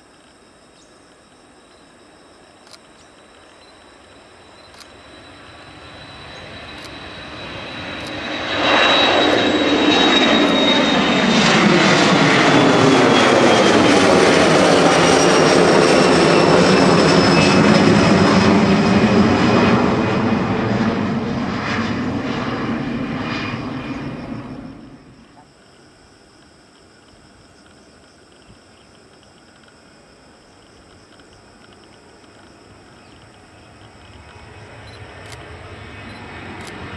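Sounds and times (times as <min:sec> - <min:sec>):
jet engines at takeoff: 0:00.0 - 0:36.9.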